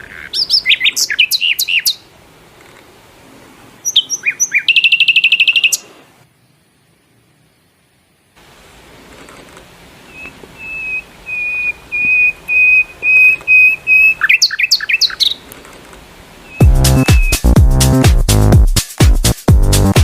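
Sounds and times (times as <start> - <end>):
bird whistling and chirping: 0.4 - 2.0, 3.8 - 5.9, 10.1 - 15.4, 16.5 - 17.5.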